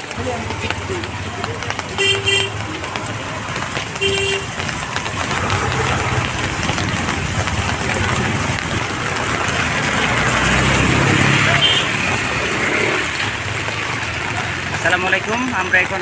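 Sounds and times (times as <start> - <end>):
vehicle engines running: 0.0 - 16.0
car horn toot: 2.0 - 2.6, 4.0 - 4.6, 11.6 - 11.9.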